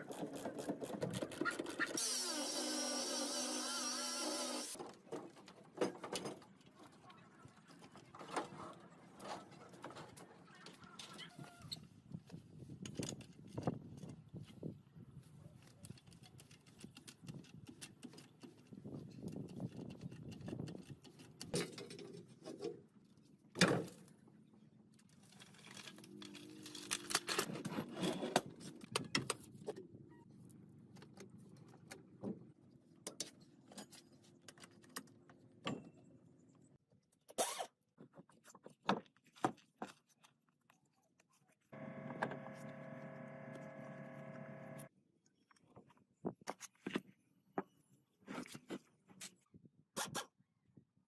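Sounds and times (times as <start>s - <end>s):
machine humming: 41.8s - 44.9s.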